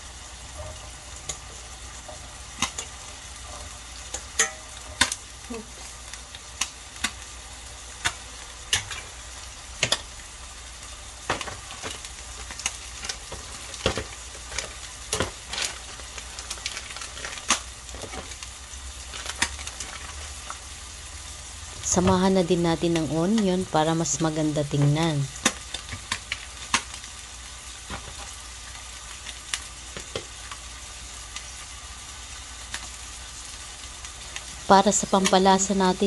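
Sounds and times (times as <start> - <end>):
food sizzling in a grill pan: 0.0 - 36.0
sharp pops and clicks: 2.6 - 2.9, 25.4 - 27.0.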